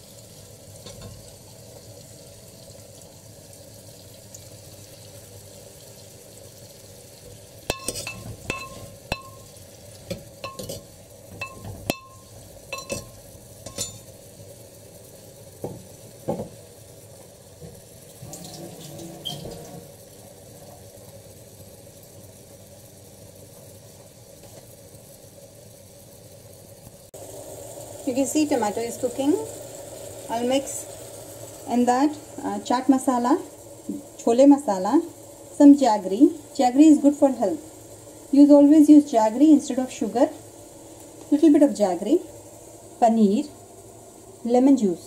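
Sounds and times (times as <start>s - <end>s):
food sizzling in a clay pot: 0.0s - 45.0s
utensils clinking on a clay pot: 7.7s - 9.5s, 10.4s - 14.1s.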